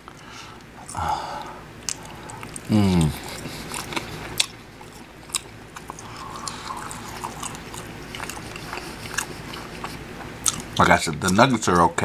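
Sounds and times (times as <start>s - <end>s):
close-up chewing: 0.1s - 11.9s.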